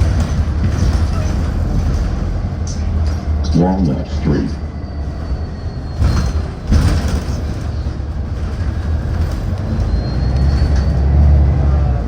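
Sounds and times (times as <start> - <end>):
knocks or rattles: 0.0 - 3.5, 5.0 - 11.0
bus engine and road rumble: 0.0 - 12.0.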